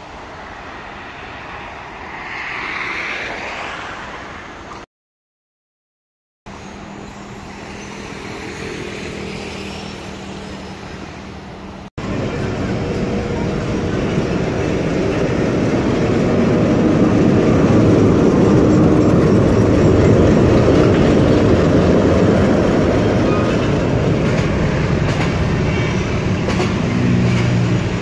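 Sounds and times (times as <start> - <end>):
train rumble with wheel clatter: 6.5 - 28.0.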